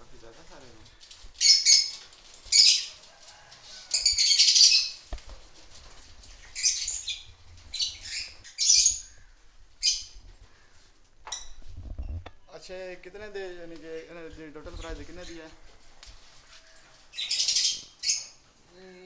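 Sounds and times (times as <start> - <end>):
parrots squawking and chattering: 1.0 - 12.4, 16.6 - 18.4.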